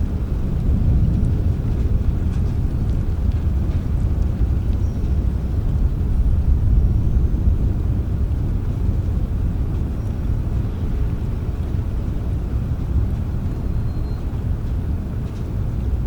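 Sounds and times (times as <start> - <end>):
rainstorm rumble: 0.0 - 16.0.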